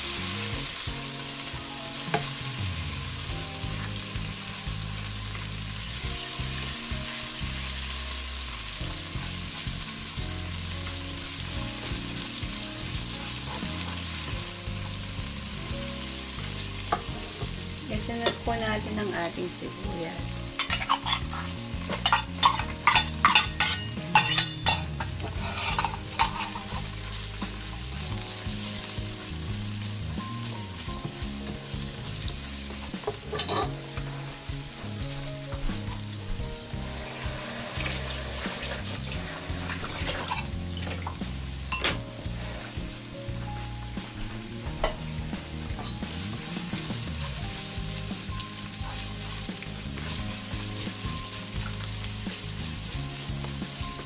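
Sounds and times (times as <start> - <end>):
onions sizzling in oil: 0.0 - 54.0
spoon clinking on metal cup: 20.6 - 21.2, 22.0 - 24.9, 25.7 - 26.6, 33.4 - 33.7.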